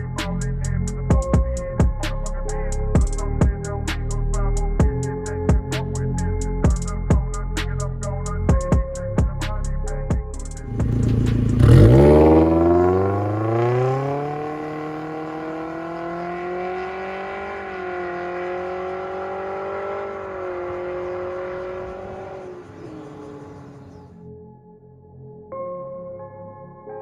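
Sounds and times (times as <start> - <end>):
car engine accelerating: 10.6 - 24.1.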